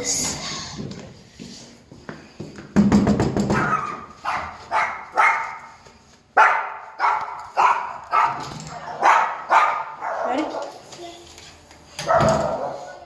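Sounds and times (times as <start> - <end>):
dog barking: 3.6 - 5.7, 6.4 - 10.8, 12.0 - 13.0.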